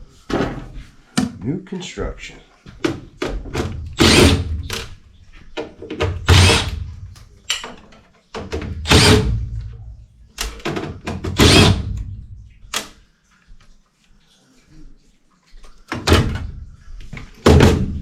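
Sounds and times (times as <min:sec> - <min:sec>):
power driver running: 0:04.0 - 0:04.8, 0:06.2 - 0:07.0, 0:08.8 - 0:09.5, 0:11.4 - 0:12.0
metal clicks and knocks: 0:07.1 - 0:09.1.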